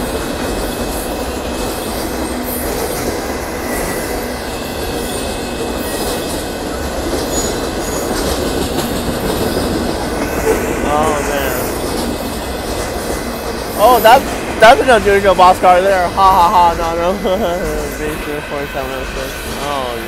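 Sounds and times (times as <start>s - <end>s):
freight train wheels rumbling on rails: 0.0s - 20.0s
high wheel squeals: 1.0s - 14.8s.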